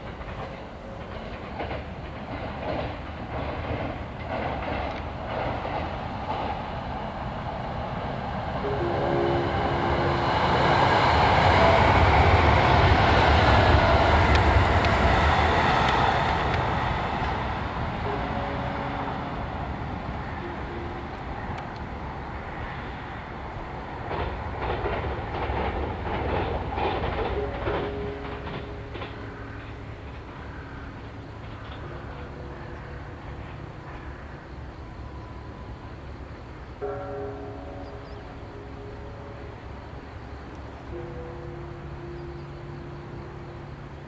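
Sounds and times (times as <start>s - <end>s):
train wheels knocking over rail joints: 0.0s - 6.6s, 24.0s - 32.4s.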